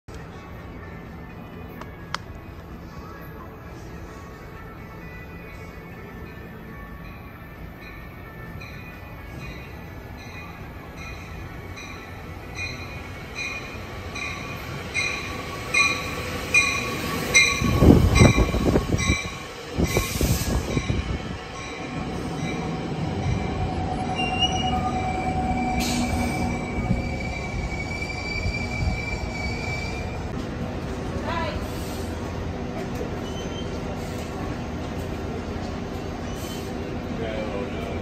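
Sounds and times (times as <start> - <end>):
loud low train noise: 0.1 - 38.0
train bell ringing: 4.5 - 30.2
wheel and brake squeal: 33.2 - 34.2.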